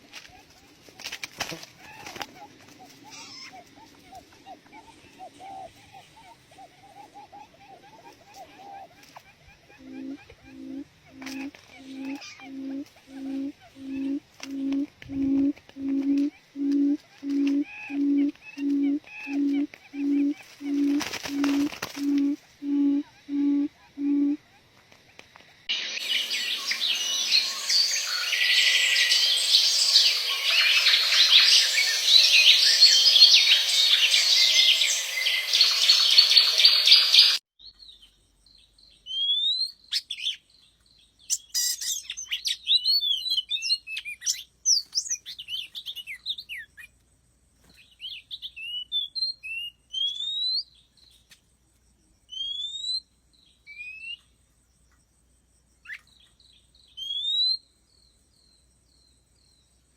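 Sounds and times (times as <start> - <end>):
birds chirping: 1.4 - 24.6, 25.8 - 38.2.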